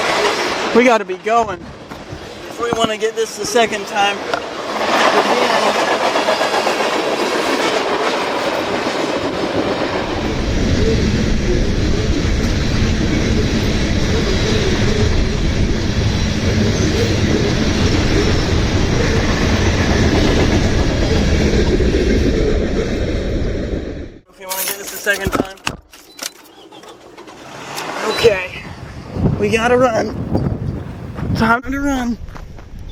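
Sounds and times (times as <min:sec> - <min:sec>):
freight train rolling past: 0:00.0 - 0:24.3.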